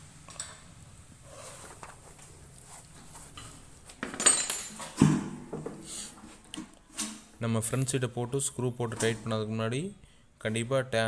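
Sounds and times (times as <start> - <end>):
metal tools clinking: 4.0 - 5.0.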